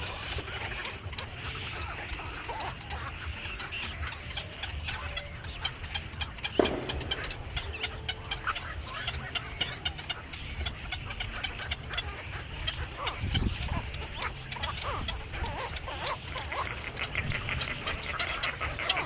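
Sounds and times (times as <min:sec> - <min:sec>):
small birds chirping: 0:00.0 - 0:19.0
steady low rumble: 0:00.0 - 0:19.0
sharp knock: 0:06.6 - 0:08.3.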